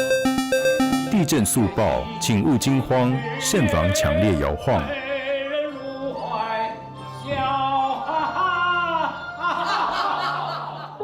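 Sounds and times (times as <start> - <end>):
low musical accompaniment: 0.0 - 4.9
man singing opera style: 1.2 - 6.4.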